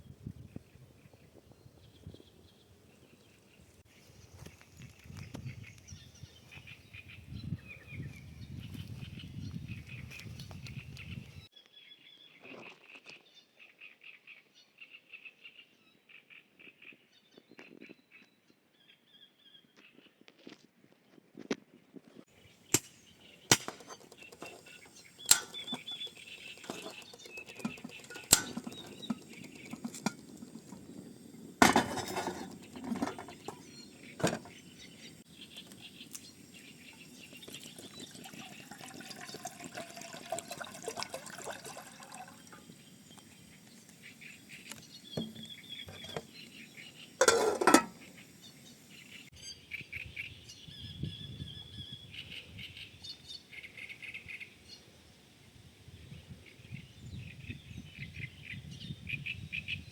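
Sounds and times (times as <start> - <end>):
birds chirping: 0.0 - 12.5, 22.3 - 54.9
sharp knocks and clatters: 22.8 - 30.9, 47.2 - 48.0.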